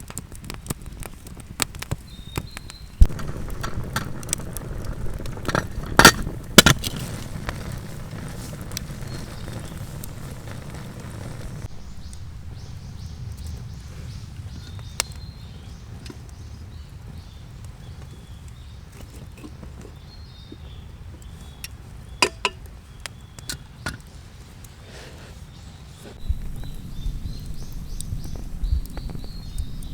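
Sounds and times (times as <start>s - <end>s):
sharp cracks: 0.0s - 12.2s
steady low rumble: 3.0s - 14.6s, 26.2s - 29.9s
faint bird chirps: 25.7s - 29.9s.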